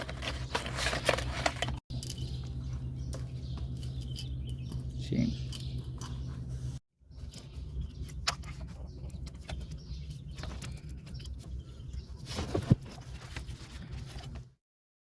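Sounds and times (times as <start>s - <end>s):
metal tools clinking and knocking: 1.1s - 6.6s, 7.2s - 12.0s.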